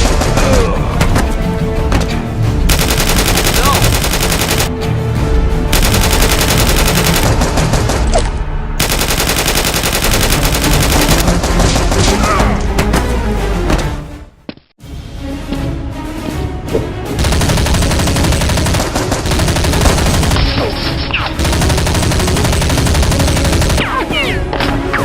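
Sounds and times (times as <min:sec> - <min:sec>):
background music: 0:00.0 - 0:25.0
automatic gunfire: 0:02.7 - 0:04.7, 0:05.8 - 0:08.2, 0:08.8 - 0:12.2, 0:17.2 - 0:20.5, 0:21.4 - 0:23.9.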